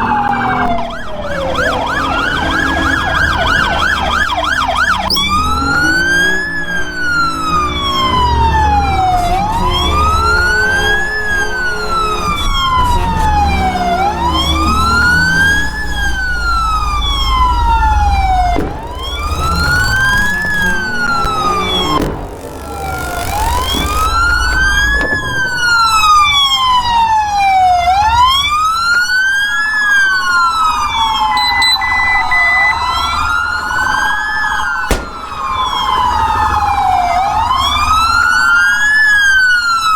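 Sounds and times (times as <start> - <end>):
engine and road noise: 0.0 - 39.9
police siren wailing: 0.0 - 39.9
steady beep tone: 31.4 - 33.1.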